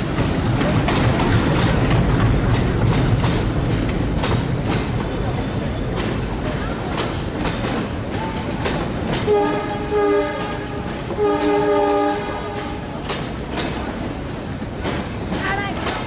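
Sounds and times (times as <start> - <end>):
train carriages rumbling past: 0.0 - 16.0
wheels clacking over rail joints: 0.0 - 16.0
train horn blasts: 9.2 - 13.0.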